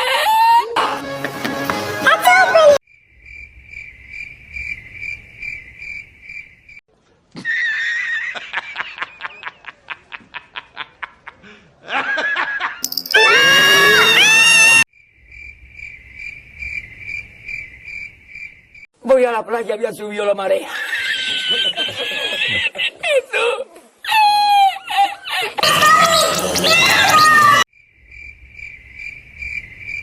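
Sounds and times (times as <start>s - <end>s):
cricket chirping: 2.9s - 6.8s, 14.9s - 18.9s, 27.7s - 30.0s.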